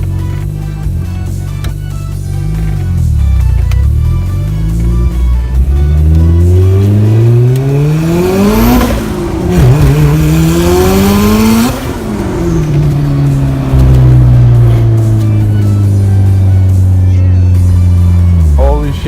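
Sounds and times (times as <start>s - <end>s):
turbocharged car accelerating hard: 4.4s - 19.0s.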